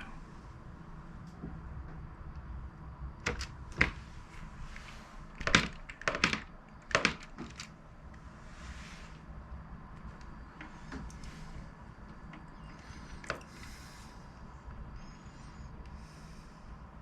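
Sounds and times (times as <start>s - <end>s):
keyboard keys clicking: 5.4s - 7.7s.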